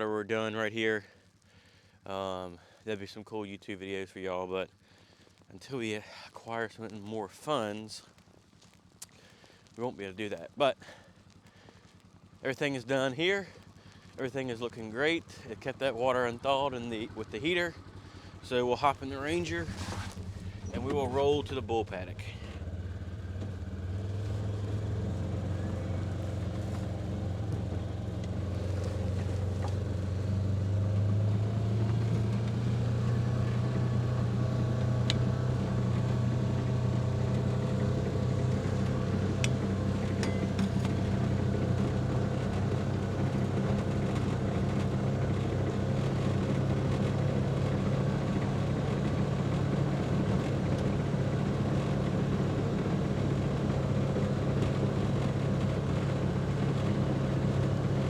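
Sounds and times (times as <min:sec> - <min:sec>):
utility vehicle engine driving: 0:15.0 - 0:58.0.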